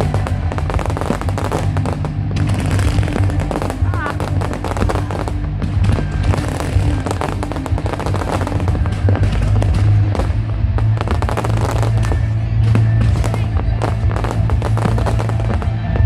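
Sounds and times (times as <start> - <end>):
fireworks bangs and crackles: 0.0 - 16.0
loud music with bass: 0.0 - 16.0.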